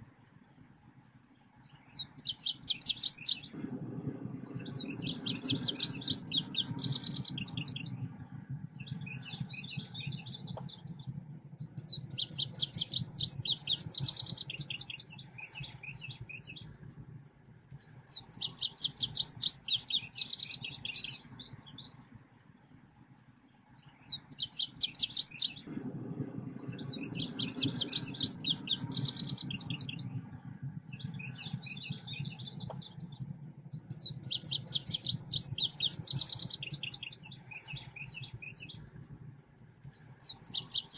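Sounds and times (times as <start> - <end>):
low hum: 0.0 - 40.9
rapid high bird chirping: 30.9 - 38.8, 39.9 - 40.9.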